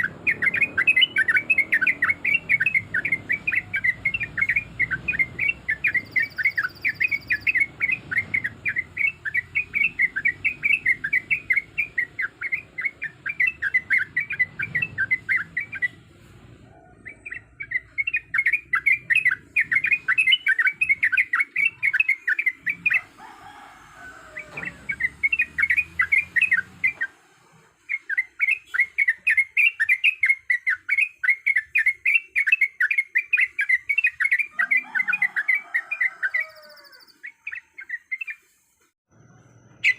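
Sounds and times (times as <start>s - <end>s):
bulbul singing chattering notes: 0.0s - 16.1s, 17.1s - 23.1s, 24.7s - 27.1s.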